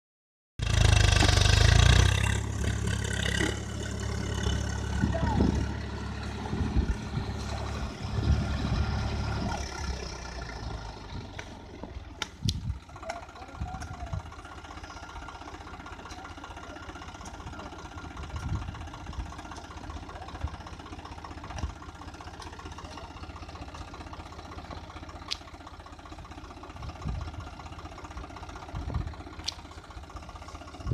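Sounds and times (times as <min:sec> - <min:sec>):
low bumps: 0:00.6 - 0:14.4
tractor engine idling: 0:00.6 - 0:30.9.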